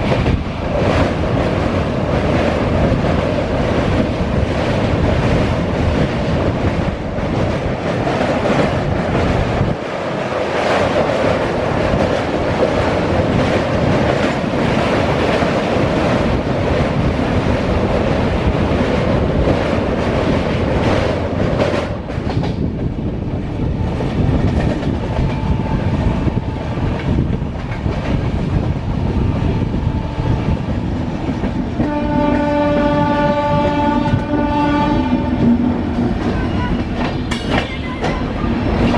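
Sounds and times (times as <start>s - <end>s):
clatter of train wheels: 0.0s - 38.9s
train running on rails: 0.0s - 38.9s
train horn blast: 31.8s - 37.1s.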